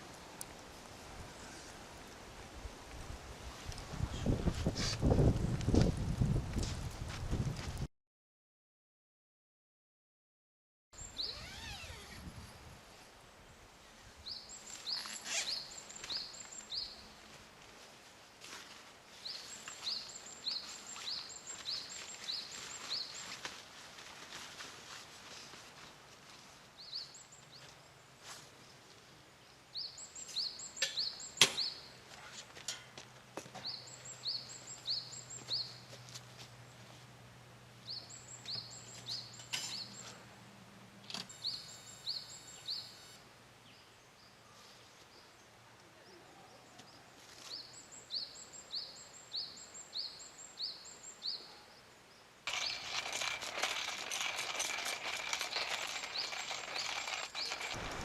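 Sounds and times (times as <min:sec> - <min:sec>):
songbird singing: 0:11.0 - 0:12.7, 0:13.4 - 0:17.2, 0:19.1 - 0:23.4, 0:26.8 - 0:32.1, 0:33.6 - 0:36.0, 0:37.8 - 0:40.4, 0:41.2 - 0:58.0
sharp crack: 0:57.4 - 0:58.0.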